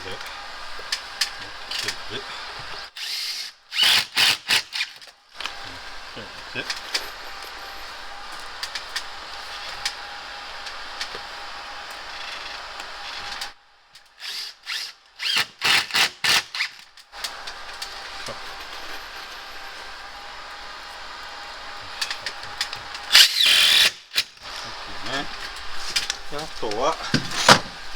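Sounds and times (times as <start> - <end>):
cordless drill-driver bursts: 0.9 - 10.0, 14.1 - 20.0, 21.9 - 26.2.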